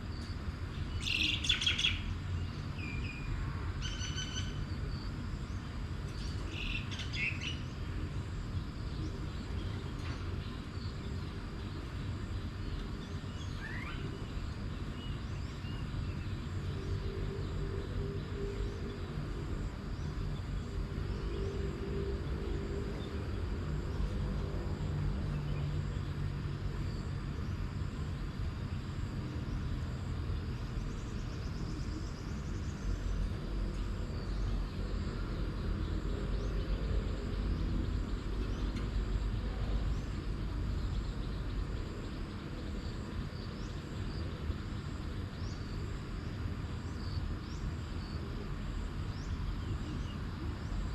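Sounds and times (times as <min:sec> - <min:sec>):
distant traffic rumble: 0:00.0 - 0:50.9.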